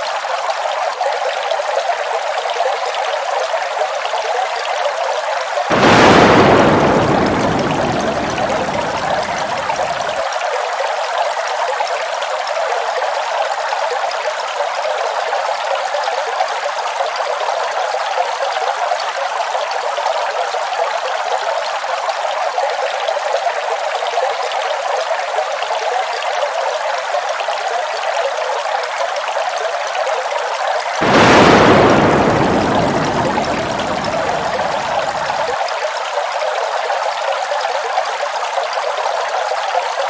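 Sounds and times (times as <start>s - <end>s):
waterfall rushing: 5.7s - 10.2s, 31.0s - 35.6s.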